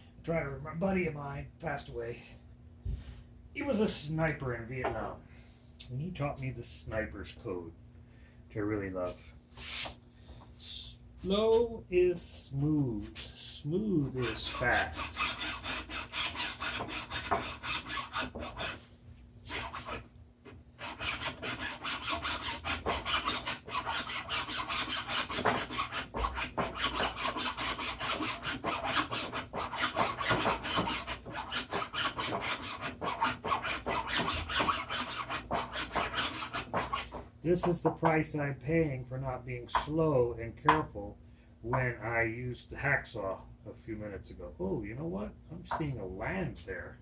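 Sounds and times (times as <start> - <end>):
hacksaw rasping on metal: 14.2 - 18.8, 20.8 - 37.2.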